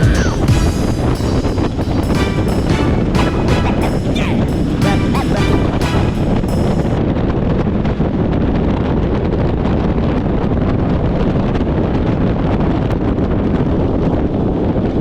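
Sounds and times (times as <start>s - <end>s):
wind rushing over microphone: 6.9s - 15.0s.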